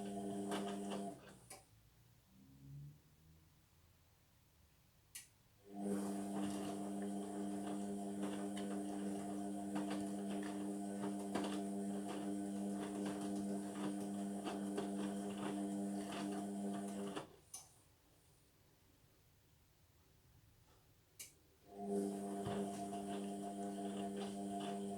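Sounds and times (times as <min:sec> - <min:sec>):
washing machine drum humming: 0:21.9 - 0:24.9.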